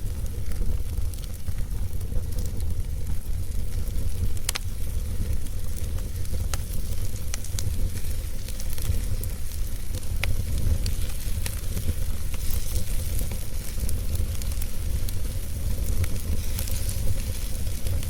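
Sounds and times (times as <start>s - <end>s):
steady hiss: 0.0s - 18.0s
wood fire crackling: 0.0s - 18.0s.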